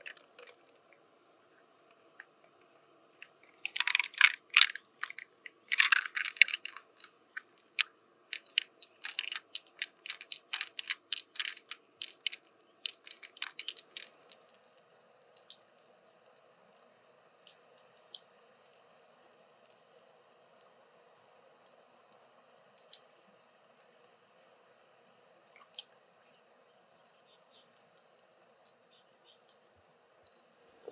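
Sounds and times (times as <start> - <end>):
clam shell crunching: 3.2 - 14.6.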